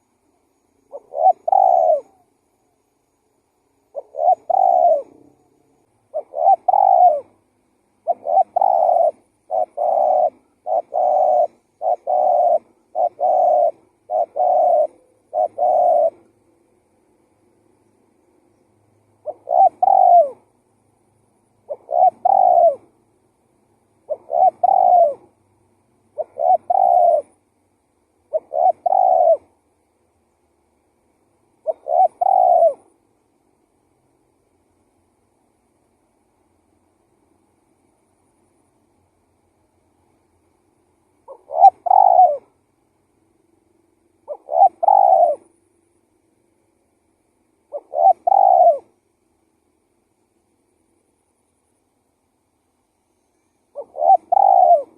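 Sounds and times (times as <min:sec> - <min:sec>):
dove cooing: 0:00.9 - 0:02.3, 0:03.9 - 0:16.4, 0:19.2 - 0:20.5, 0:21.6 - 0:22.9, 0:24.0 - 0:25.4, 0:26.1 - 0:27.4, 0:28.3 - 0:29.6, 0:31.6 - 0:33.0, 0:41.2 - 0:42.6, 0:44.2 - 0:45.6, 0:47.7 - 0:49.0, 0:53.6 - 0:54.9.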